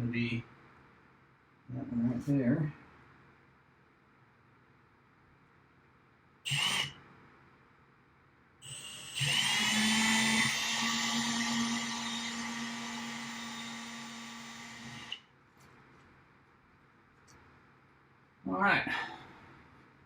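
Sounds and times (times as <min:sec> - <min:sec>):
power drill drilling into metal: 0:06.5 - 0:06.9, 0:08.6 - 0:15.2.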